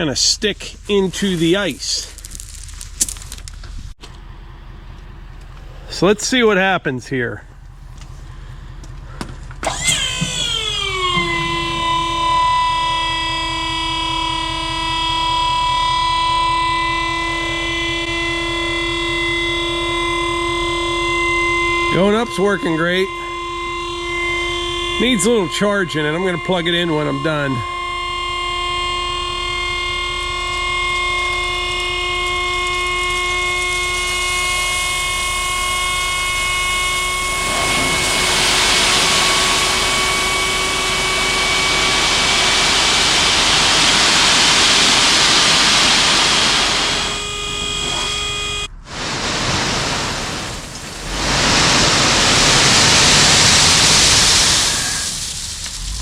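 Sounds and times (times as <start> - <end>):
hydraulic pump whining: 0.0 - 56.0
loud rushing noise: 37.2 - 47.2, 48.7 - 55.3.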